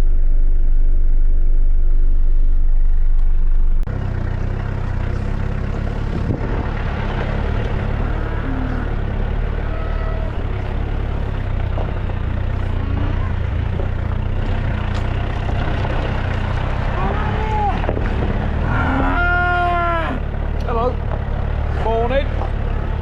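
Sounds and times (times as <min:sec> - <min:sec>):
truck engine running: 0:00.0 - 0:23.0
cattle mooing: 0:07.5 - 0:11.4, 0:12.6 - 0:14.0, 0:18.6 - 0:20.3.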